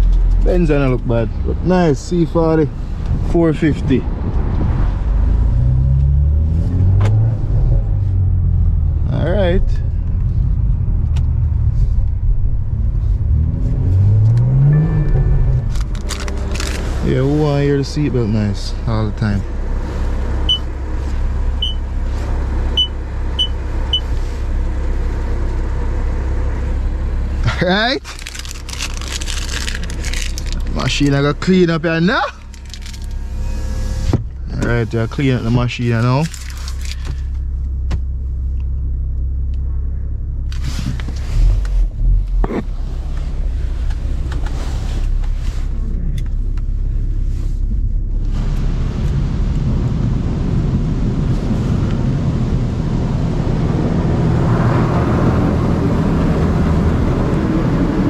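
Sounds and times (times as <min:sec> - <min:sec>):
car engine rumble: 0:00.0 - 0:58.0
seatbelt warning beeps: 0:20.5 - 0:20.7, 0:21.6 - 0:21.8, 0:22.7 - 0:24.2
car wash water rushing: 0:48.2 - 0:58.0.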